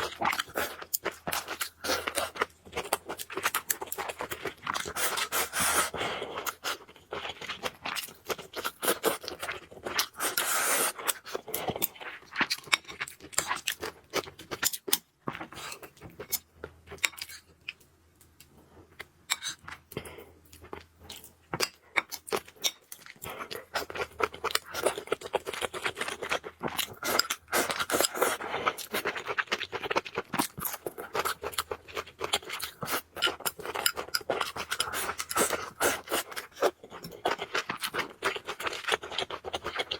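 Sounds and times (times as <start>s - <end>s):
person chewing noodles: 0.0s - 17.8s, 18.4s - 39.9s.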